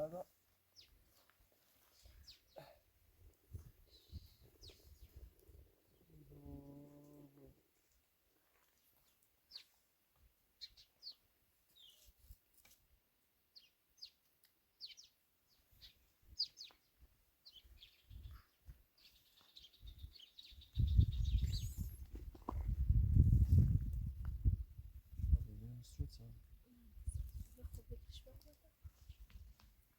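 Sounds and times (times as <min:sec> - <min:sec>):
small birds chirping: 0:00.7 - 0:02.9, 0:03.5 - 0:07.3, 0:08.7 - 0:09.9, 0:10.5 - 0:12.2, 0:13.5 - 0:22.1, 0:26.6 - 0:29.6.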